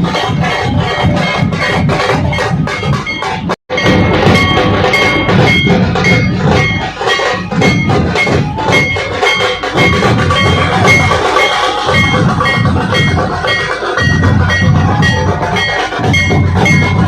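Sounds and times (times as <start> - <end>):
drums beaten in dense rhythm: 0.0 - 17.0.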